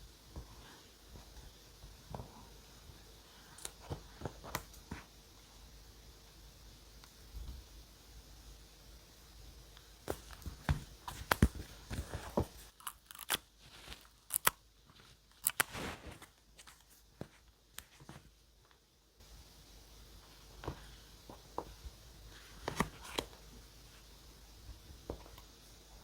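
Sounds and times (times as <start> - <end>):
paper crinkling: 10.1 - 18.3, 22.3 - 23.4.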